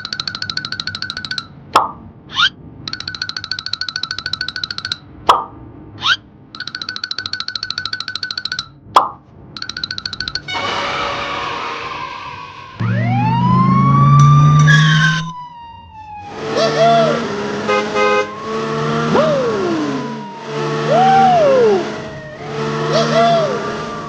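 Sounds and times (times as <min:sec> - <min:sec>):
horn-like drone: 0:10.5 - 0:15.4, 0:16.3 - 0:24.0
siren wails: 0:10.5 - 0:24.0
whistling glide: 0:14.2 - 0:15.4.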